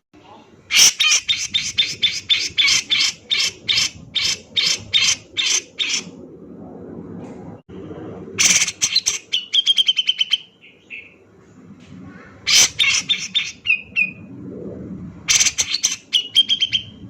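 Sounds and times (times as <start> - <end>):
bulbul singing: 8.4 - 11.2, 15.3 - 17.0.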